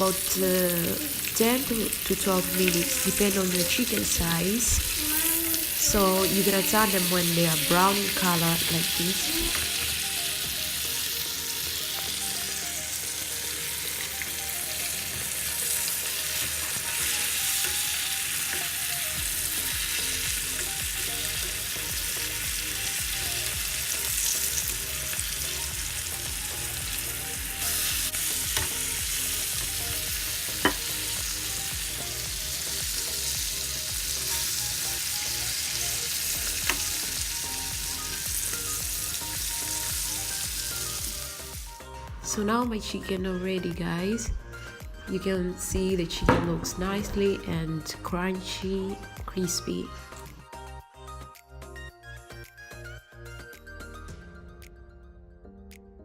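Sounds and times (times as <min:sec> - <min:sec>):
chicken deep-frying in oil: 0:00.0 - 0:41.6.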